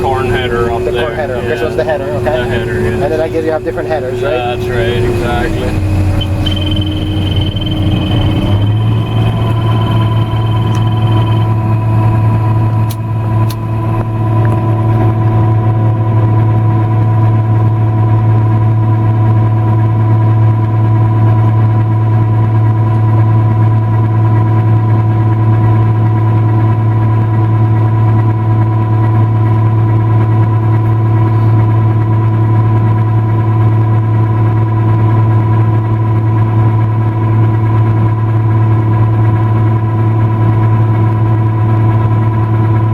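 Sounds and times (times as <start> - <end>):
high machine whine: 0.0 - 20.2
combine harvester drone: 0.0 - 42.9
faint clicks: 6.2 - 11.6.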